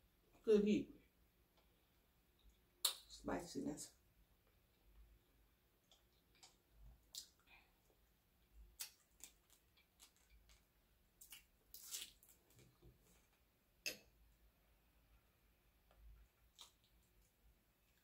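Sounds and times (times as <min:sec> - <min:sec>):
lip smacks and chewing: 0:05.8 - 0:07.5, 0:16.3 - 0:17.4.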